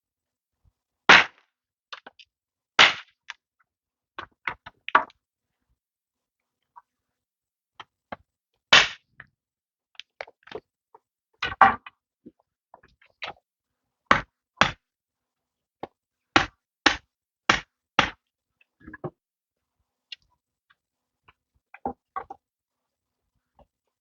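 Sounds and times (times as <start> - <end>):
tool knocking on bamboo: 14.1 - 14.8, 16.4 - 18.2.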